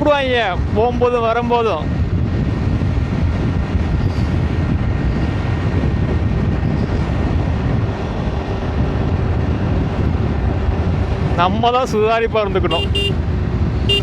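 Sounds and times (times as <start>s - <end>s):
wind rush on microphone: 0.0s - 14.0s.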